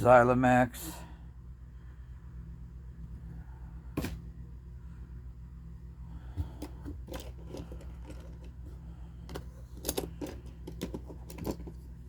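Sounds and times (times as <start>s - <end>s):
steady low hum: 0.0s - 12.0s
plastic case being handled: 6.4s - 12.0s
toy cars clicking and tapping: 9.3s - 11.8s.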